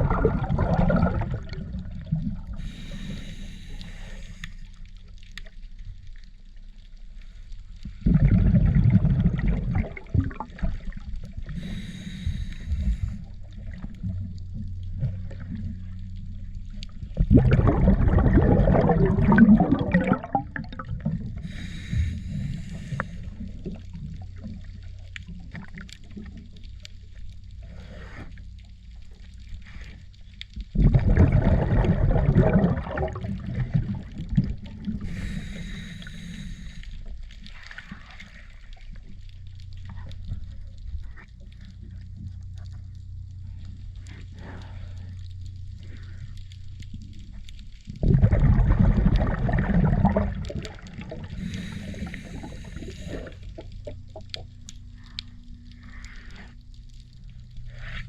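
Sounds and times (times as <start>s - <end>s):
water gurgling and splashing: 0.0s - 4.4s, 7.9s - 26.7s, 30.6s - 42.8s, 46.8s - 55.9s
low hum: 0.0s - 58.0s.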